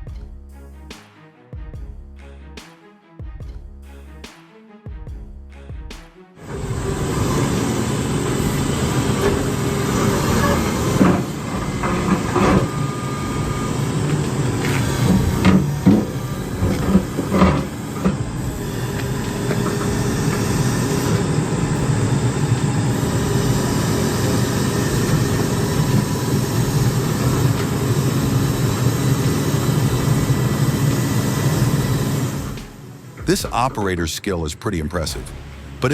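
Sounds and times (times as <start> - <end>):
diesel engine running under load: 6.4 - 34.1.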